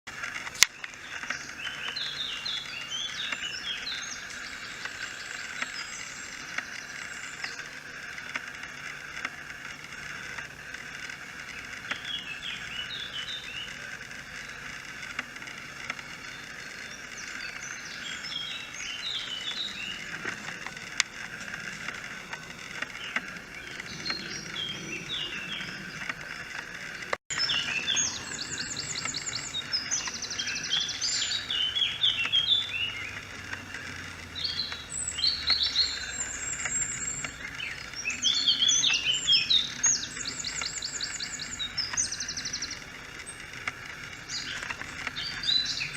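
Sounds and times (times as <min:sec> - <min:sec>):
background bird chorus: 0:00.1 - 0:45.9
fast bird trilling song: 0:00.1 - 0:45.9
high chirping bird phrases: 0:22.8 - 0:26.5, 0:27.3 - 0:43.4.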